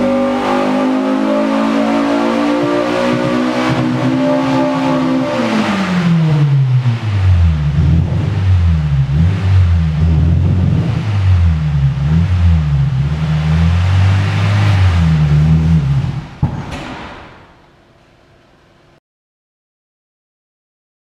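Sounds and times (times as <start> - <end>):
car engine revving on a dyno: 0.0 - 16.4.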